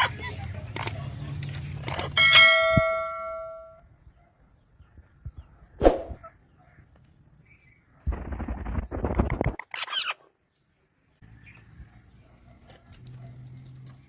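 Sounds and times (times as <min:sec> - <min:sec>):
small metal bell ringing: 0:02.2 - 0:03.8.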